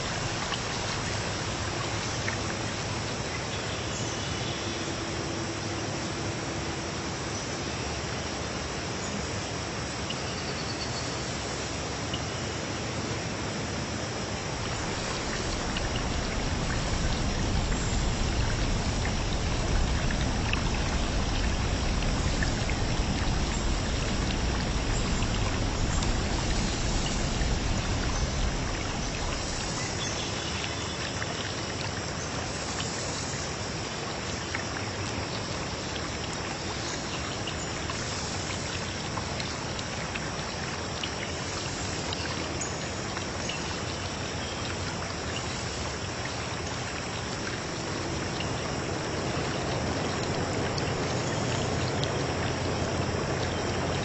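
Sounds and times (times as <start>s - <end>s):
rushing water: 0.0s - 54.0s
low rumble: 14.6s - 29.9s.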